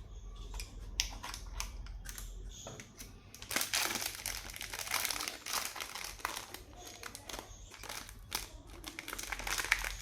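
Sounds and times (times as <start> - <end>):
wrappers crinkling: 3.4 - 10.0.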